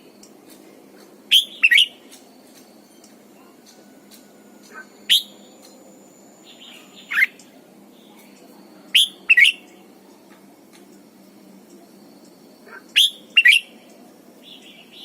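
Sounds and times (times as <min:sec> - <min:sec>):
bird calling in sweeping notes: 0:01.3 - 0:02.0, 0:04.6 - 0:05.5, 0:08.9 - 0:09.7, 0:12.7 - 0:13.7.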